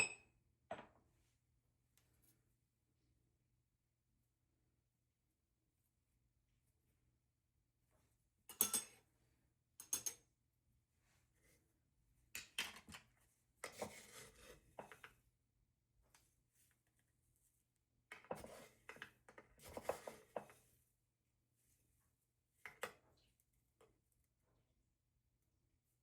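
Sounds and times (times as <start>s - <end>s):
dishes and utensils clattering: 8.5s - 9.0s.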